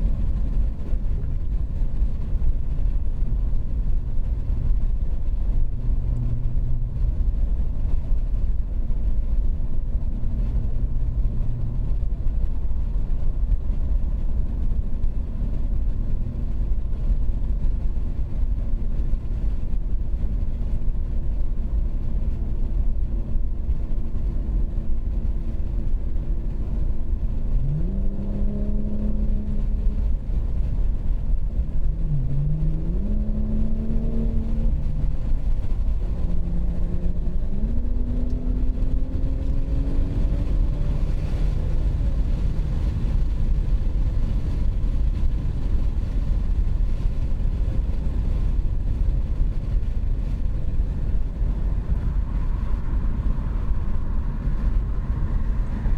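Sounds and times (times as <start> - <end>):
car engine exhaust drone: 0.0 - 55.9
engine accelerating: 26.8 - 45.3.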